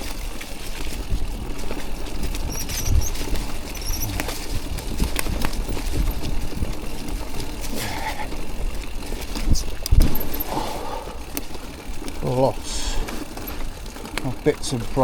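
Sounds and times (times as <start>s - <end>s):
wind rumble on microphone: 0.0s - 10.6s
bike rattling over roots: 0.0s - 15.0s.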